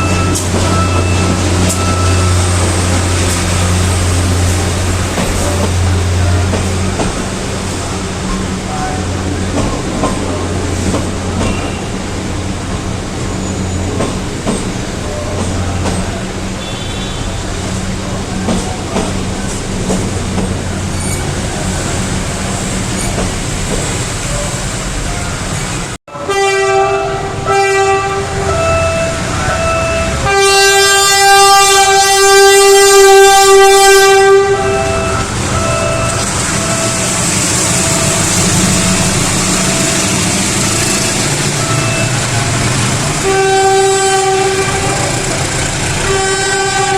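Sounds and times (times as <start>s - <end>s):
diesel train engine rumble: 0.0s - 46.9s
train air horn blasts: 16.6s - 17.4s, 26.1s - 37.0s, 43.2s - 45.4s, 46.0s - 46.9s.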